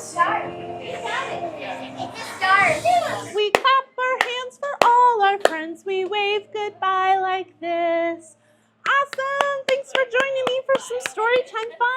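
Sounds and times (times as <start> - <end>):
woman singing a children's song: 3.4 - 11.9
sharp hand claps: 3.6 - 5.6, 8.9 - 11.7.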